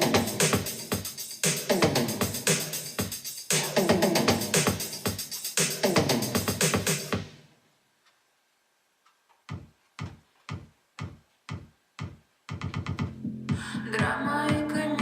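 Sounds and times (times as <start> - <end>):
electronic pop song: 0.0 - 7.3, 9.5 - 15.0
single drum beats: 9.5 - 14.8.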